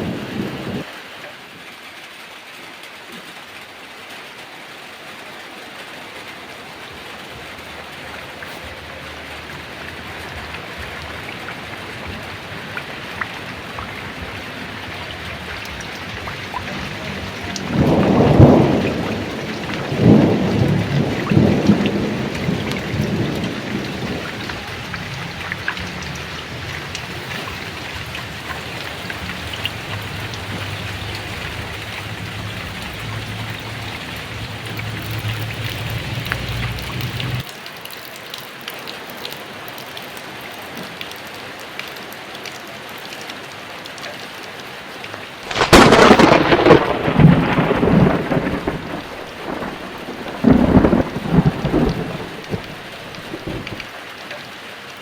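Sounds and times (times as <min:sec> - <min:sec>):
loud thunderclaps: 0:00.0 - 0:00.8, 0:09.7 - 0:37.4, 0:45.5 - 0:53.9
low thunder rumble: 0:00.0 - 0:00.8, 0:06.9 - 0:37.4, 0:45.5 - 0:53.9
heavy rain: 0:00.0 - 0:55.0.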